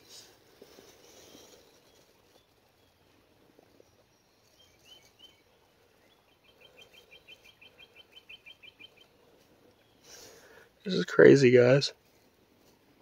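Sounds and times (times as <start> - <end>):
bird trill: 6.1 - 9.2.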